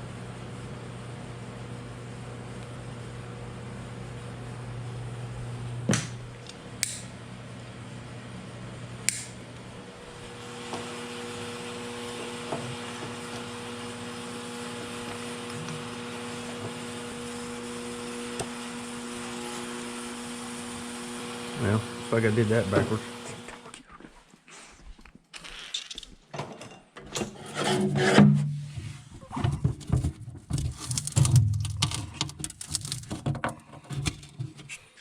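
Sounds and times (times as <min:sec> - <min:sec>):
fan humming: 0:02.5 - 0:23.8, 0:29.1 - 0:34.7.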